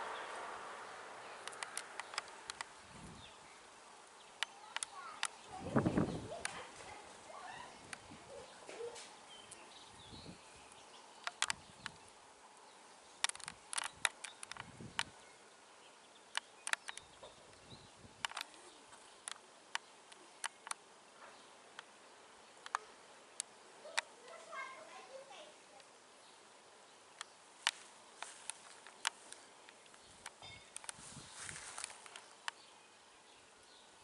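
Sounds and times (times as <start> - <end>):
sharp clicks and ticks: 1.4 - 2.7, 4.4 - 5.4, 11.2 - 12.0, 13.2 - 15.1, 16.3 - 17.1, 18.2 - 18.6, 19.2 - 20.8, 22.6 - 22.8.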